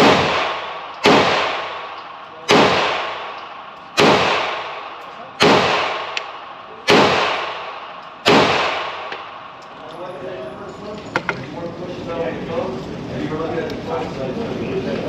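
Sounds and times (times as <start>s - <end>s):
handgun shots echoing: 0.0s - 9.8s.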